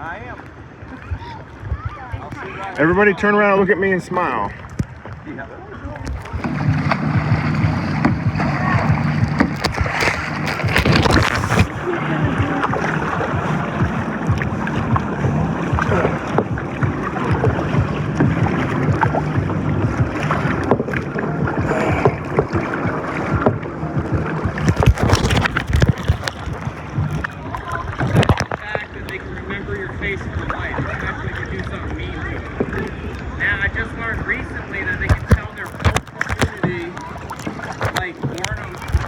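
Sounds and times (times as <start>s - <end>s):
wind buffeting microphone: 0.0s - 3.3s, 3.9s - 39.0s
paddles knocking and splashing: 0.0s - 39.0s.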